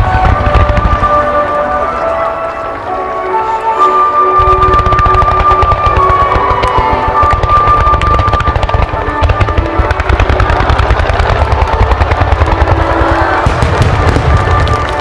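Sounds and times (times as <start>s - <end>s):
fireworks deep thuds: 0.0s - 1.9s, 4.4s - 15.0s
fireworks crackling: 0.0s - 15.0s.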